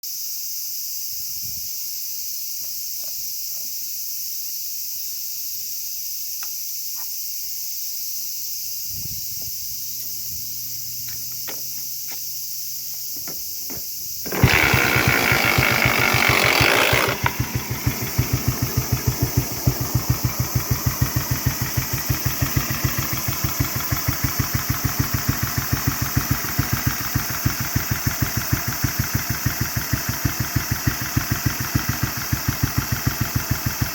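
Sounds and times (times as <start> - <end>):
kick-start clicks and knocks: 13.1 - 33.9
motorcycle engine revving and idling: 14.2 - 33.9.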